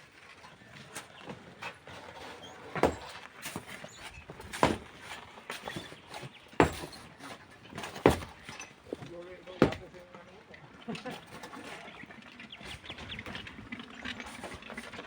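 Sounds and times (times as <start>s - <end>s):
light knocks and scrapes: 0.2s - 10.0s, 12.6s - 15.0s
heavy mining strikes: 6.6s - 7.1s, 7.8s - 10.0s.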